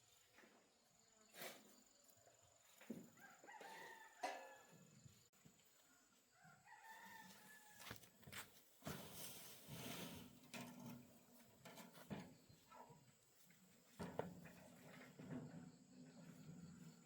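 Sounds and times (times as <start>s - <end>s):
faint rooster crow: 2.9s - 8.2s.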